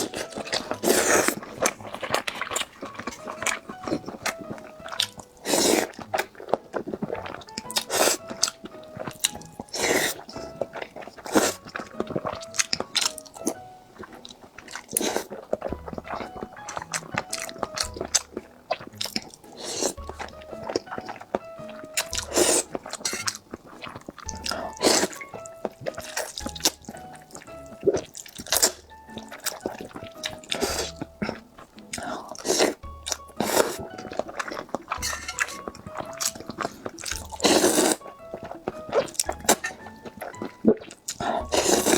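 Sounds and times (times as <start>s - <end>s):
chewing crunchy food: 0.0s - 41.9s
light background music: 0.0s - 41.9s.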